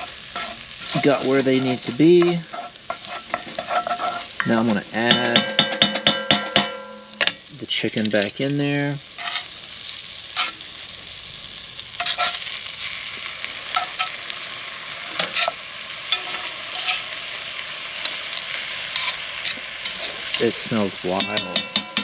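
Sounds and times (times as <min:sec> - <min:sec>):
utensil scraping pan: 0:00.0 - 0:07.3, 0:09.2 - 0:09.5, 0:12.0 - 0:12.4, 0:13.7 - 0:14.2, 0:15.1 - 0:17.2, 0:18.0 - 0:20.5
chicken sizzling in oil: 0:00.0 - 0:22.0.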